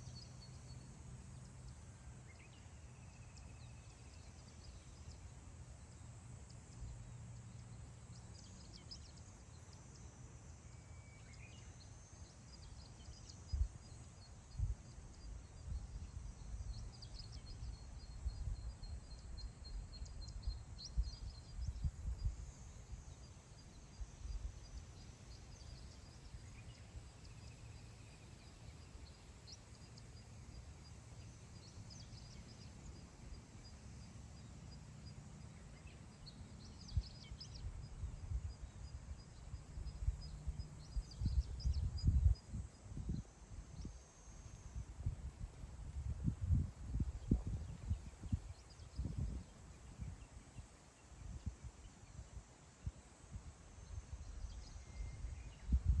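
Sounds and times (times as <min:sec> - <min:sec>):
faint bird chirps: 0:00.0 - 0:56.0
wind rumbling on microphone: 0:13.4 - 0:23.1, 0:36.7 - 0:56.0.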